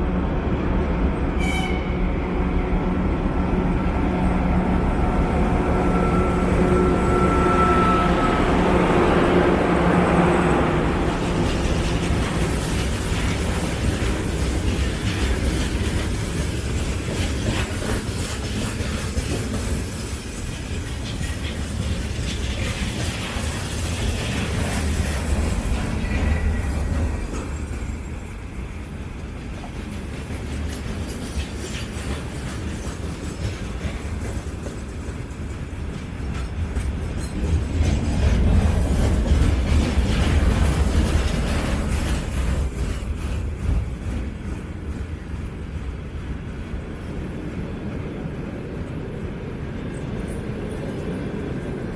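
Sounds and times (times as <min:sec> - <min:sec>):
freight train rumbling: 0:00.0 - 0:51.9
wheels clacking over rail joints: 0:29.2 - 0:45.8.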